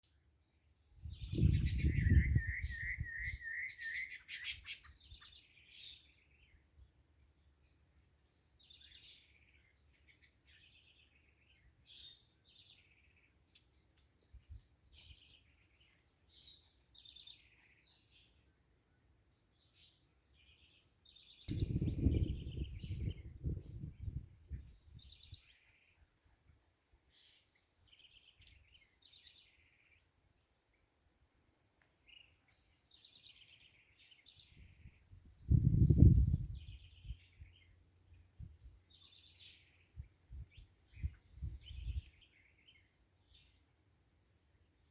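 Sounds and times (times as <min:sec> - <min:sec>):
small birds chirping: 0:00.0 - 0:44.9
bird trill: 0:01.3 - 0:05.3.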